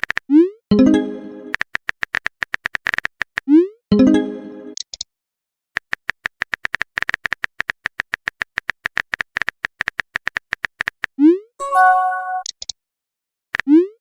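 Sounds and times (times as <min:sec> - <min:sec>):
rapid typing clicks: 0:05.8 - 0:11.1.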